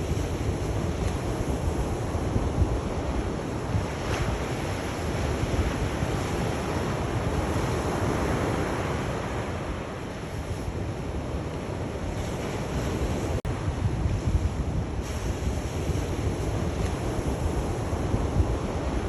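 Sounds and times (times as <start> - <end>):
sea waves washing ashore: 0.0 - 19.0
wind buffeting microphone: 0.0 - 19.0.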